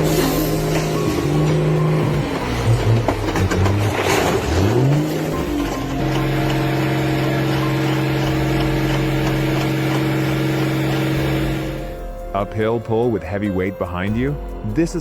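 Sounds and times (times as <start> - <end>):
tractor engine running: 0.0 - 13.2.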